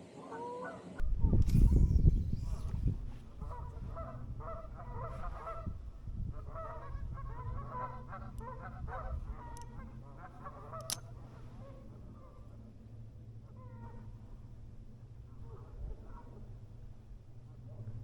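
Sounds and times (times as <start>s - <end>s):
sharp click: 1.3s - 2.8s, 10.4s - 11.3s
geese honking: 3.4s - 12.8s.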